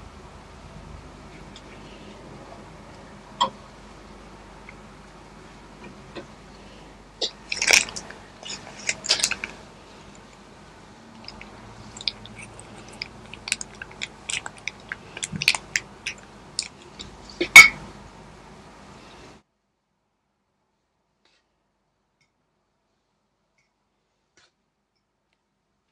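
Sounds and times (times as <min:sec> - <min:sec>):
crunchy bites and chewing: 0:07.3 - 0:09.6, 0:11.2 - 0:17.7.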